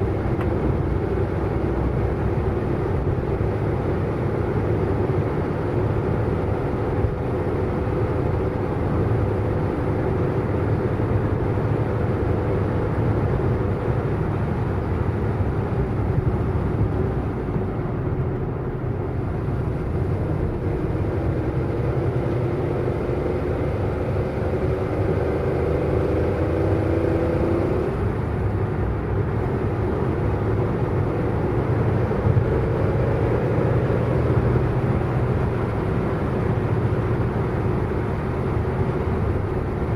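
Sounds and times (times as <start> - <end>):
car engine hum: 0.0 - 39.9
road and tyre noise: 0.0 - 39.9.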